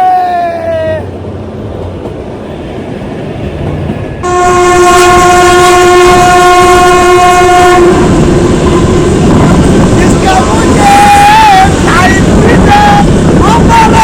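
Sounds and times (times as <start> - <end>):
train running: 0.0 - 14.0
train horn blast: 4.2 - 12.7.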